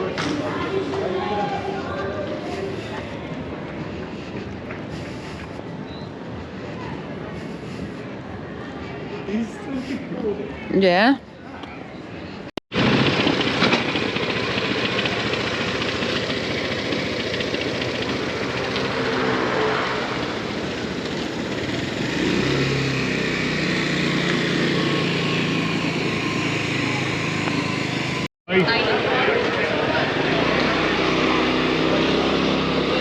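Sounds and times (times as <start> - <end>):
motorbike engine running: 12.7 - 28.3.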